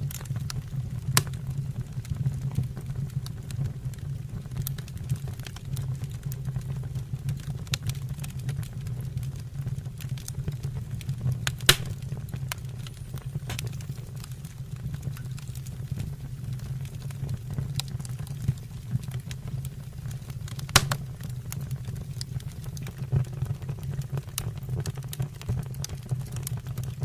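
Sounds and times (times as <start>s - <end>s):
sharp fire pops: 0.0s - 3.0s, 11.4s - 26.9s
wood fire burning: 0.0s - 27.0s.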